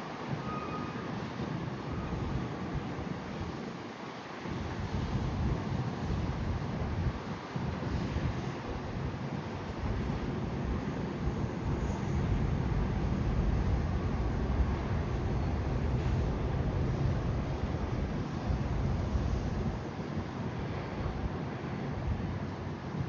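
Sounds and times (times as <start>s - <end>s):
low rumbling outdoor noise: 8.2s - 23.0s.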